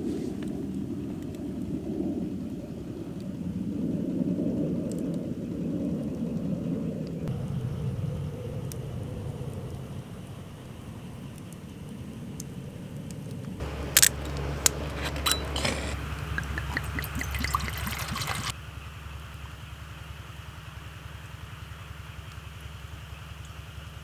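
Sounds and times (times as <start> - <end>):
sharp clicks: 13.3 - 18.5
liquid pouring: 13.6 - 18.5.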